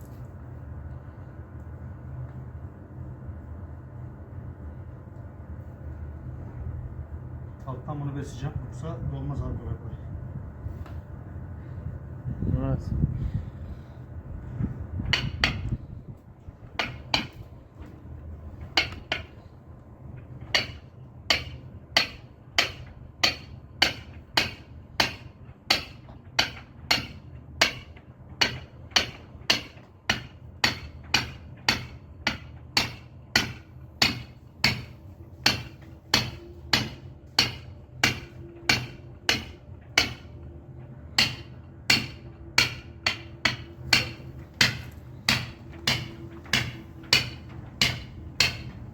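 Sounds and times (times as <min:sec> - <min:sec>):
mallet striking caulking iron: 0:15.0 - 0:15.7, 0:16.8 - 0:17.5, 0:18.8 - 0:19.3, 0:20.5 - 0:40.3, 0:41.2 - 0:48.8.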